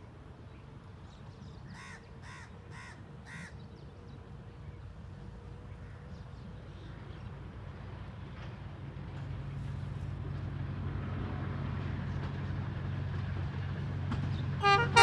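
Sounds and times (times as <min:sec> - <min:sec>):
distant diesel locomotive rumble: 0:00.0 - 0:15.0
crow cawing: 0:01.8 - 0:03.6.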